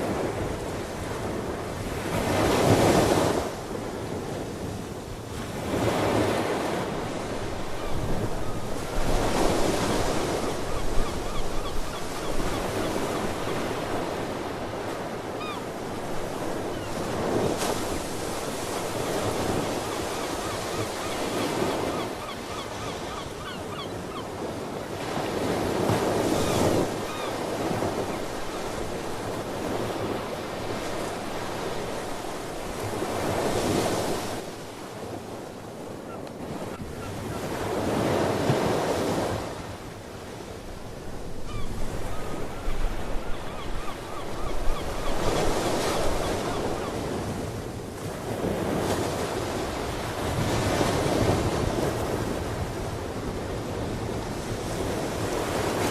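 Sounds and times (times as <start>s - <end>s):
ocean waves washing ashore: 0.0s - 55.9s
faint seabird calls: 7.6s - 17.3s, 17.9s - 24.6s, 26.2s - 28.9s, 41.4s - 47.1s.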